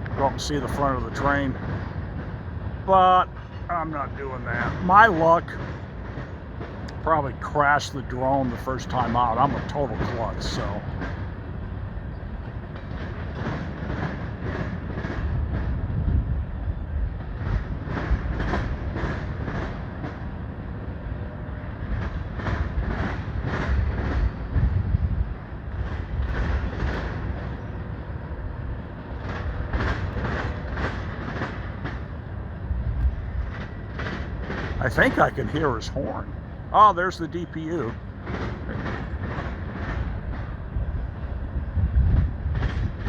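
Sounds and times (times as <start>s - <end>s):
freight train rumbling past: 0.0s - 43.0s
train wheel clicks: 29.1s - 32.1s.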